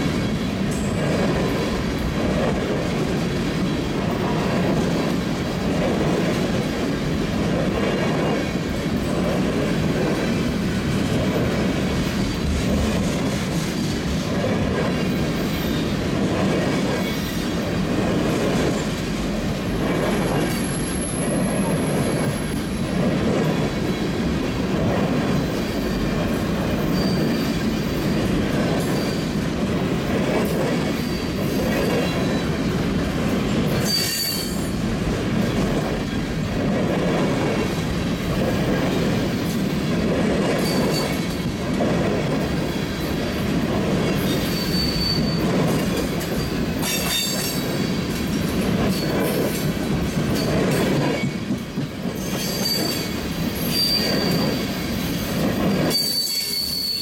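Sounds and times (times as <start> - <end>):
train wheels rumbling and clattering: 0.0 - 57.0
high-pitched wheel squeals: 26.8 - 27.6, 33.8 - 34.8, 44.3 - 45.5, 52.2 - 54.8, 55.7 - 57.0.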